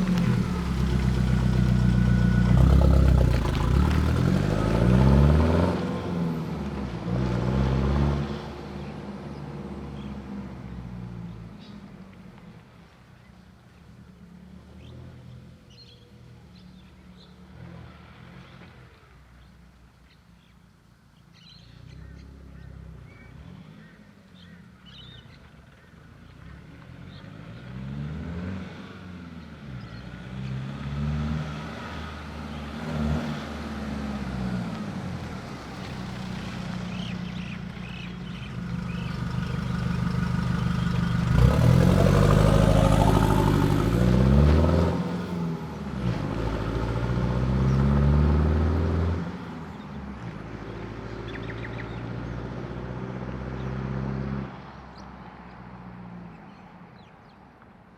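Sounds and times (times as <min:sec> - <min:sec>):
diesel engine revving: 0:00.0 - 0:08.5, 0:30.3 - 0:49.5.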